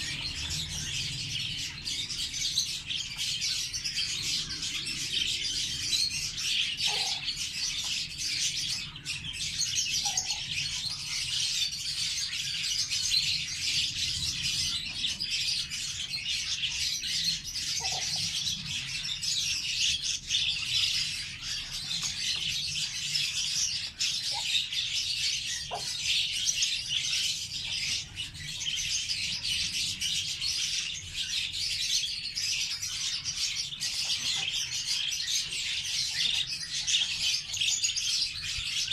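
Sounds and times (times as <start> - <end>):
lovebirds chirping: 0.0 - 38.9.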